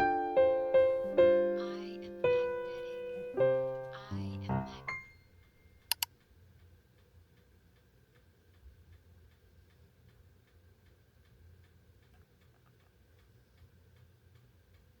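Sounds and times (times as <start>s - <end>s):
faint ticking: 0.0s - 15.0s
low steady hum: 0.0s - 15.0s.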